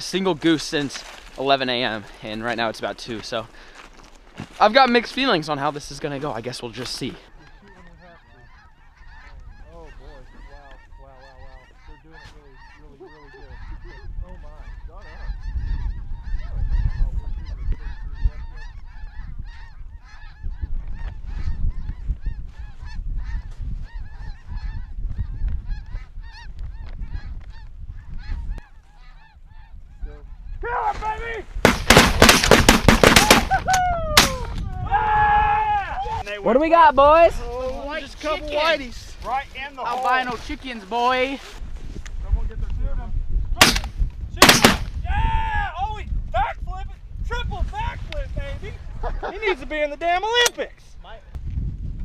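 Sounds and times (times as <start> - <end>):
geese honking: 4.6 - 30.7, 36.0 - 41.6
wind rumble on microphone: 7.8 - 39.6, 41.4 - 49.8, 50.7 - 52.0.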